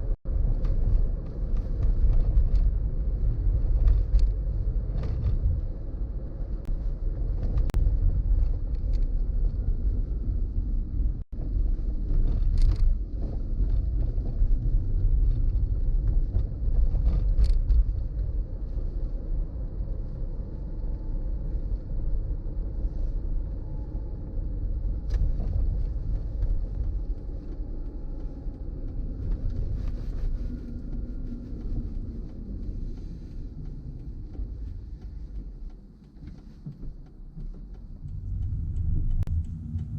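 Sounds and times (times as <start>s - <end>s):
car driving rumble: 0.0s - 39.9s
faint ticks: 25.0s - 39.9s.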